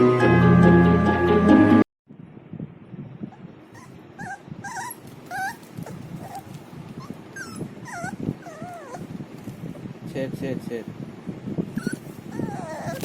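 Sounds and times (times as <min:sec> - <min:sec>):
puppy whimpering: 0:03.7 - 0:09.2, 0:11.7 - 0:13.0.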